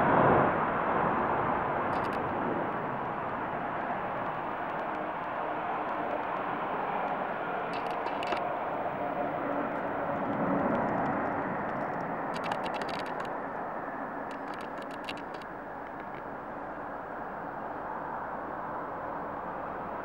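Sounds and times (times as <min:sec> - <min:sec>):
jet engines roaring: 0:00.0 - 0:20.0
faint clicks: 0:01.9 - 0:03.4, 0:04.2 - 0:08.5, 0:09.7 - 0:13.4, 0:14.2 - 0:16.3.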